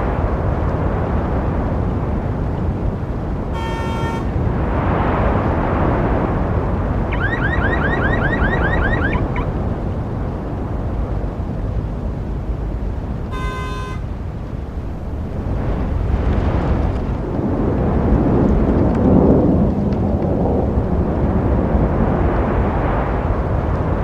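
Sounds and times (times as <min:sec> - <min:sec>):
road traffic rumble: 0:01.8 - 0:23.7
car horn honking: 0:03.6 - 0:04.3, 0:13.3 - 0:14.1
rising electronic chirps: 0:07.1 - 0:09.5.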